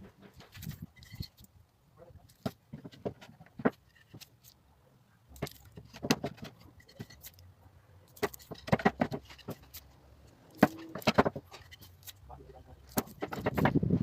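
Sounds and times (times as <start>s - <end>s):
wooden slats knocking and clattering: 2.3s - 4.2s, 5.4s - 7.2s, 8.2s - 9.8s, 10.6s - 11.9s, 12.9s - 14.0s.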